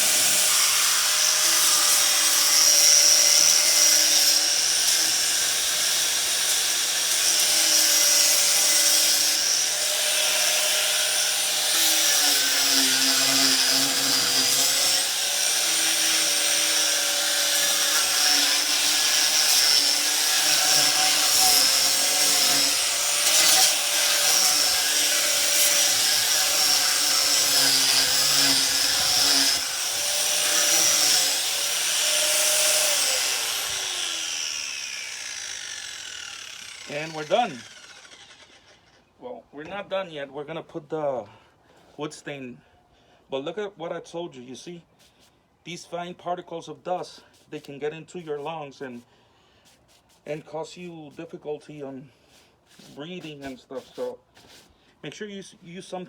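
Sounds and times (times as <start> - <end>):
angle grinder sanding wood: 0.0 - 39.0, 49.6 - 54.7.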